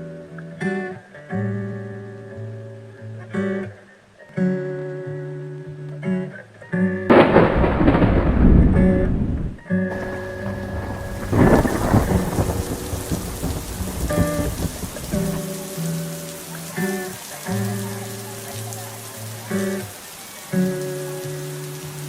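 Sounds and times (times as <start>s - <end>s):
thunderclap: 7.1s - 15.5s
heavy rain: 7.1s - 22.0s.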